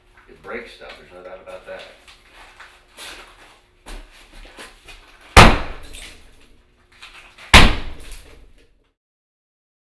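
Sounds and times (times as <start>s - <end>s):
sledgehammer blows: 5.4s - 6.2s, 7.5s - 8.2s.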